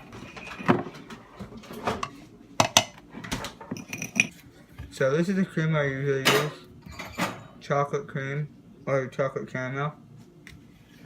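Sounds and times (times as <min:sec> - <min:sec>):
kitchenware clinking and knocking: 0:00.0 - 0:04.3, 0:06.2 - 0:07.6.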